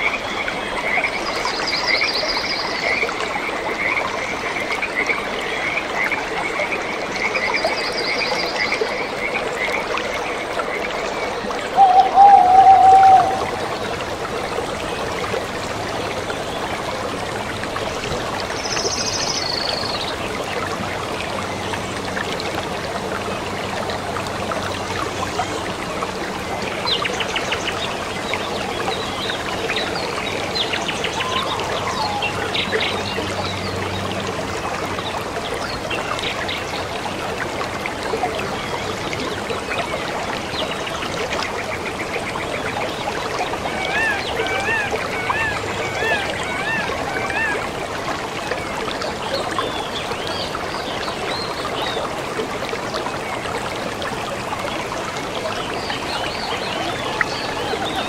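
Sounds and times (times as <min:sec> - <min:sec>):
stream of water trickling: 0:00.0 - 0:58.0
birds calling: 0:11.8 - 0:14.4, 0:30.4 - 0:33.2, 0:43.7 - 0:47.8.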